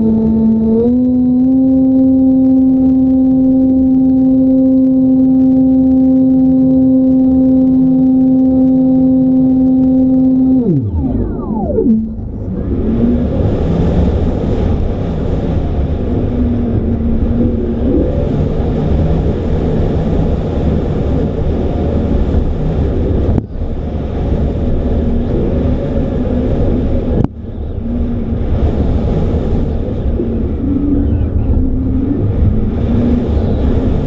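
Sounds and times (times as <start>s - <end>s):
model plane motor running: 0.0s - 14.6s
wind rush over microphone: 0.0s - 34.0s.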